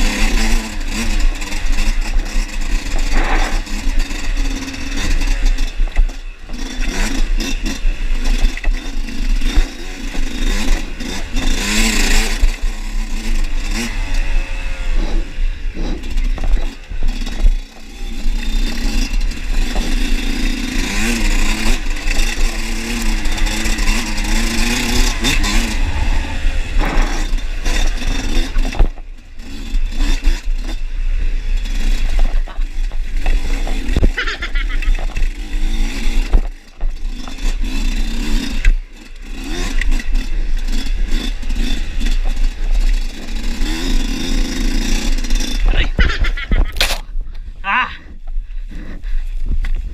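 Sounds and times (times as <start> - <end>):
dirt bike engine under load: 0.0 - 49.9
wind noise: 23.2 - 29.2, 45.4 - 49.9.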